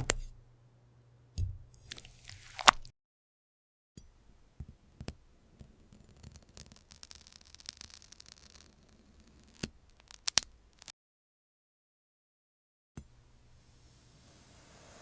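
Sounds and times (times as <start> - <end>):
soft crackling and rubbing: 5.6 - 10.9.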